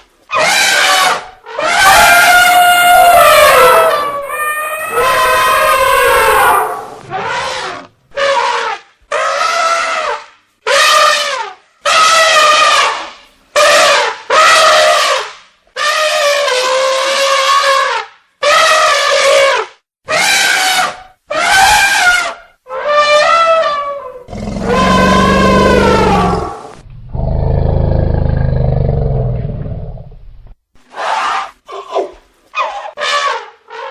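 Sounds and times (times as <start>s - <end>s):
elephants trumpeting: 0.4s - 13.0s, 21.4s - 29.0s.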